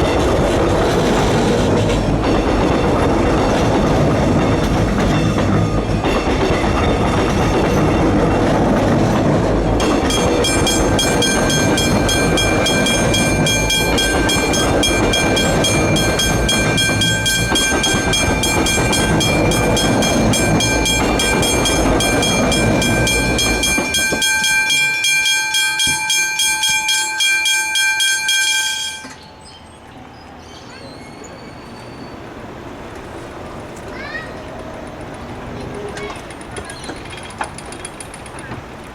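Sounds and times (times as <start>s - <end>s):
train rumbling and wheel clatter: 0.0s - 38.9s
crossing warning bell ringing: 9.8s - 29.4s.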